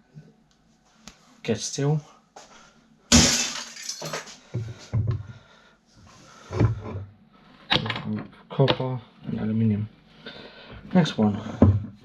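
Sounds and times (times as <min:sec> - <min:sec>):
metal scrap clattering onto pile: 0:03.1 - 0:04.3.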